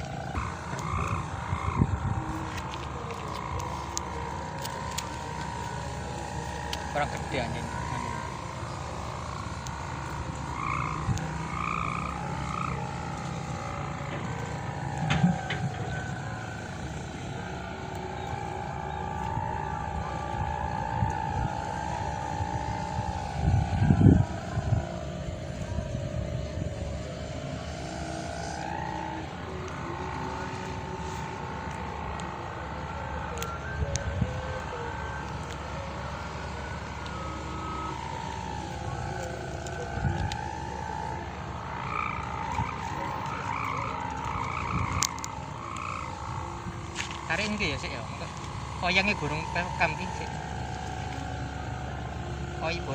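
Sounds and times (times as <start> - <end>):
wind rumble on microphone: 0.0 - 4.2, 18.3 - 27.6, 44.4 - 47.3
kite hummer droning: 0.0 - 52.9.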